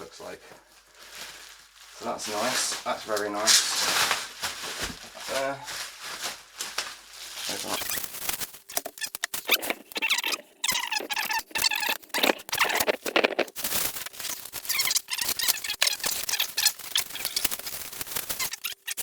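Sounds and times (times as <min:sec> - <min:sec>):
plastic packaging crinkling: 0:00.2 - 0:19.0
high squeaks: 0:07.5 - 0:19.0.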